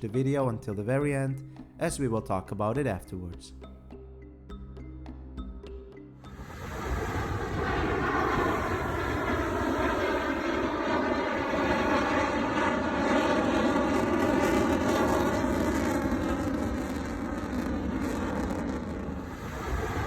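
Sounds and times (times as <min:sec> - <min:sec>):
fighter jet flying past: 0:06.3 - 0:20.0.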